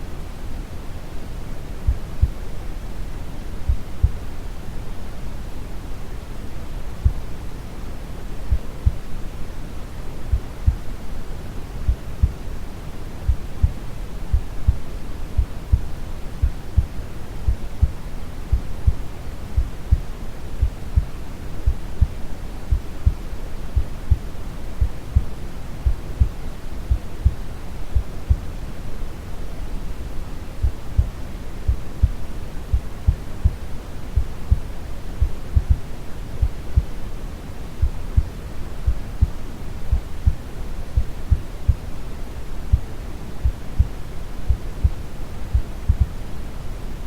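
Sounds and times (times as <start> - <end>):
steady brown noise: 0.0 - 47.0
slow heartbeat thumps: 1.9 - 2.4, 10.3 - 10.9, 11.9 - 12.4, 13.3 - 19.0, 19.6 - 23.2, 23.8 - 28.5, 30.6 - 33.6, 34.2 - 37.0, 37.8 - 41.9, 42.7 - 46.2.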